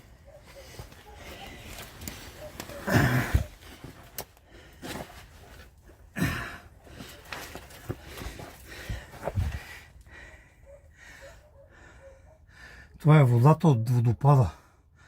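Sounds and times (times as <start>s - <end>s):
person breathing hard: 6.0s - 13.0s.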